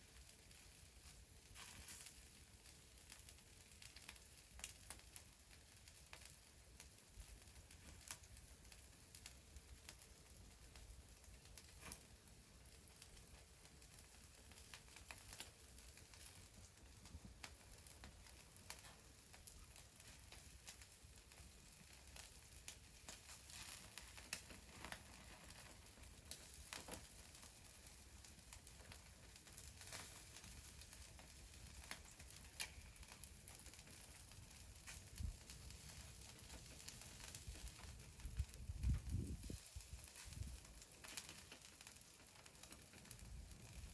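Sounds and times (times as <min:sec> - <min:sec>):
faint wood fire crackling: 0:00.0 - 0:43.9.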